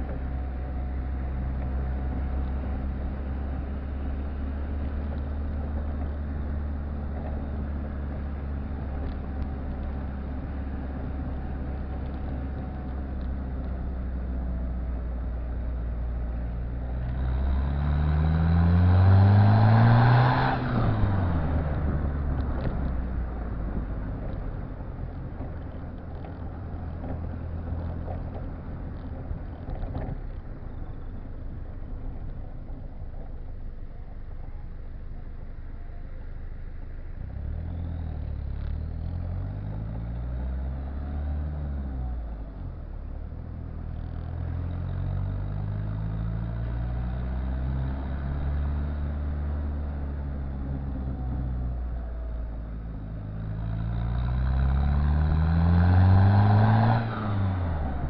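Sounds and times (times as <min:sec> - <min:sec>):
diesel engine revving: 0:17.1 - 0:22.7, 0:53.2 - 0:58.0.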